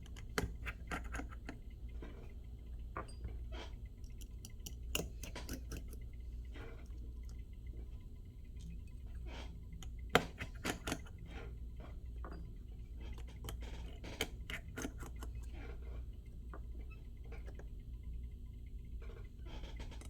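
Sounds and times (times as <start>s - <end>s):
hand tools clicking and tapping: 0.0s - 1.6s, 4.1s - 6.0s, 9.8s - 11.2s, 13.1s - 15.4s
steady low hum: 0.0s - 20.0s.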